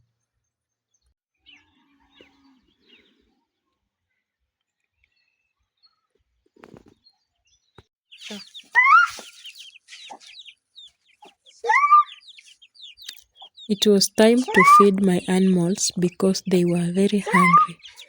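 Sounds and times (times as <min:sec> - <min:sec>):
chickens calling: 0:08.2 - 0:18.0
chicks peeping: 0:08.2 - 0:18.0.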